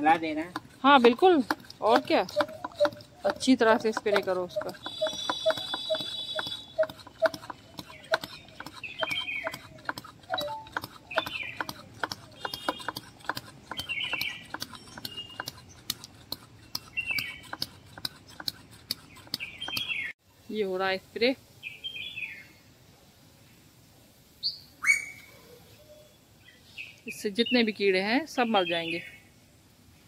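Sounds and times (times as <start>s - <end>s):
high bird twittering: 2.0s - 13.0s, 13.7s - 15.8s, 19.1s - 20.1s, 24.5s - 25.3s.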